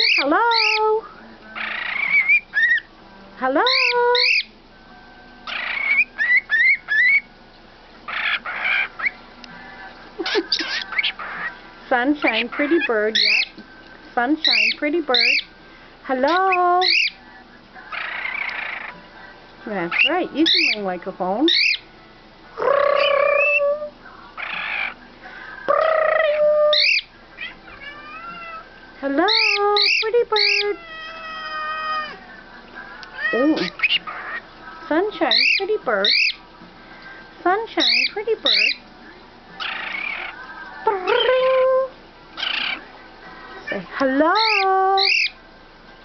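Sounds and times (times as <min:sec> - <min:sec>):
bird harsh squawk: 0:00.0 - 0:00.8, 0:01.6 - 0:02.9, 0:03.6 - 0:04.5, 0:05.5 - 0:07.3, 0:08.1 - 0:09.2, 0:10.2 - 0:11.6, 0:12.2 - 0:13.5, 0:14.4 - 0:15.5, 0:16.8 - 0:17.2, 0:17.9 - 0:19.0, 0:19.9 - 0:20.8, 0:21.5 - 0:21.8, 0:24.4 - 0:25.0, 0:25.7 - 0:28.6, 0:29.3 - 0:32.2, 0:33.2 - 0:34.5, 0:35.2 - 0:36.4, 0:37.8 - 0:38.8, 0:39.6 - 0:40.4, 0:42.4 - 0:42.9, 0:43.7 - 0:45.4
bird whistling: 0:00.0 - 0:00.8, 0:01.6 - 0:02.9, 0:03.6 - 0:04.5, 0:05.4 - 0:07.3, 0:12.2 - 0:13.6, 0:14.4 - 0:15.5, 0:16.3 - 0:17.2, 0:19.9 - 0:21.9, 0:25.7 - 0:27.9, 0:29.2 - 0:30.8, 0:33.3 - 0:34.4, 0:35.2 - 0:36.4, 0:37.8 - 0:38.8, 0:42.4 - 0:42.9, 0:44.3 - 0:45.4
bird long calls: 0:25.7 - 0:27.9, 0:35.3 - 0:36.4, 0:44.4 - 0:45.4.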